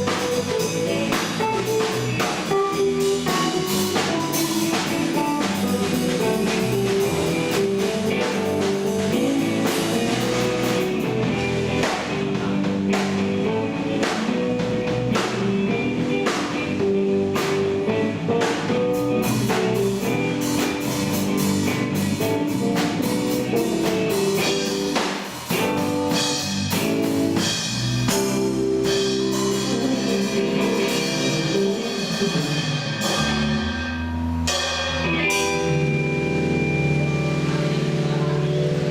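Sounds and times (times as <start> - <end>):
drum kit hits: 0.0 - 38.8
electric guitar: 0.0 - 38.9.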